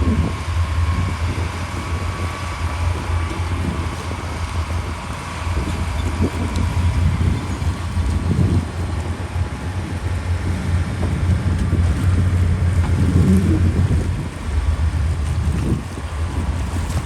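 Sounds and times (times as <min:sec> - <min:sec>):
diesel earthmoving machinery rumbling: 0:00.0 - 0:17.0.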